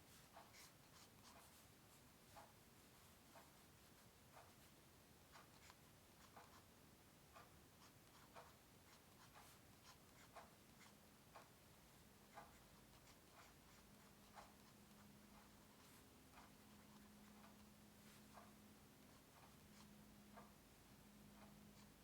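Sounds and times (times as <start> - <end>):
faint steady hum: 0.0 - 22.0
drawing tool scratching on paper: 0.4 - 1.6, 12.4 - 18.4.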